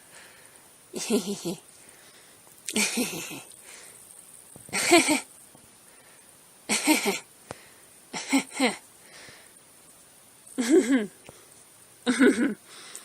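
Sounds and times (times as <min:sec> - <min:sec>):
woman laughing: 0:01.0 - 0:01.6, 0:02.7 - 0:03.5, 0:04.8 - 0:05.3, 0:06.7 - 0:07.2, 0:08.2 - 0:08.8, 0:10.6 - 0:11.2, 0:12.0 - 0:12.6.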